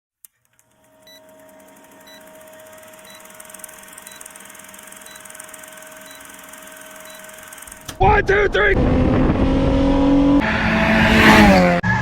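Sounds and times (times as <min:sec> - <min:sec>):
high electronic beep: 0:01.0 - 0:01.3, 0:02.0 - 0:02.3, 0:03.0 - 0:05.4, 0:06.0 - 0:07.4.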